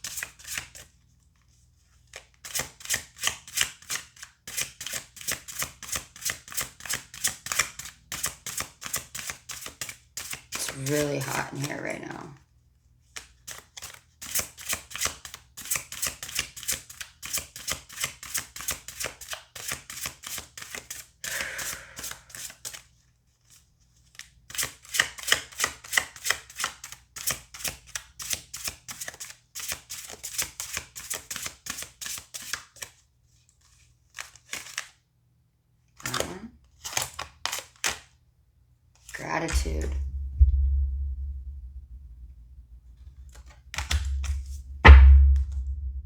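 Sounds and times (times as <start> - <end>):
cards being shuffled: 2.1 - 12.0.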